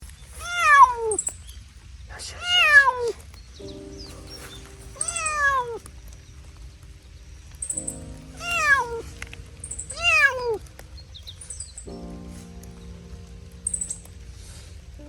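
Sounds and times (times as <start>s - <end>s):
cat meowing loudly: 0.4s - 1.4s, 2.4s - 3.2s, 5.0s - 5.8s, 8.3s - 9.2s, 9.8s - 10.7s.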